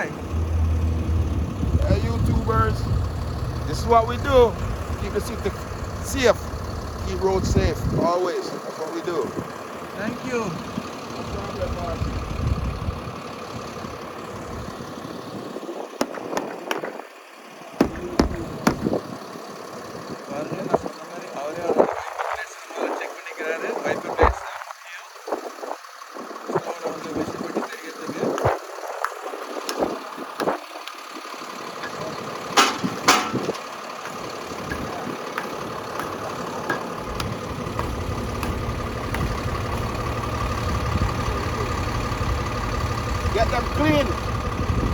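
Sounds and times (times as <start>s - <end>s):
truck engine idling: 0.0s - 44.9s
sharp knocks: 17.8s - 18.9s, 32.6s - 33.6s.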